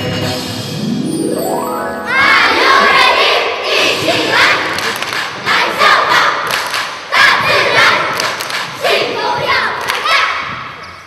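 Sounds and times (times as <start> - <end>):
children singing and shouting: 2.0 - 10.7.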